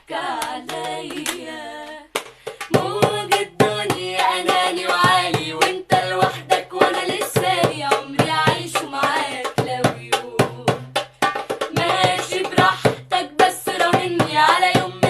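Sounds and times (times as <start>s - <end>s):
hand-beaten rhythm: 0.0s - 15.0s
women singing together: 0.0s - 15.0s.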